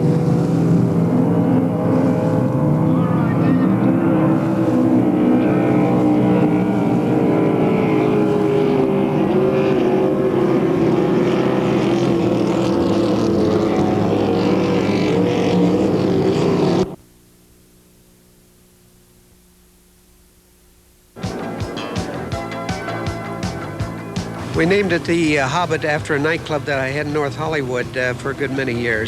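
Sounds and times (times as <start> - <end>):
powerboat engine running: 0.0 - 17.0, 21.2 - 29.0
faint steady hum: 16.3 - 21.2.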